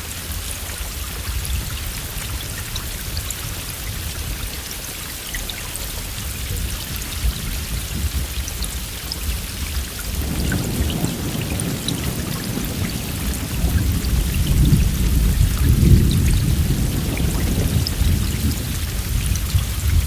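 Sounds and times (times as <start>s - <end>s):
heavy rain: 0.0s - 20.0s
close raindrop ticks: 0.7s - 20.0s
low rumble of thunder: 6.0s - 20.0s.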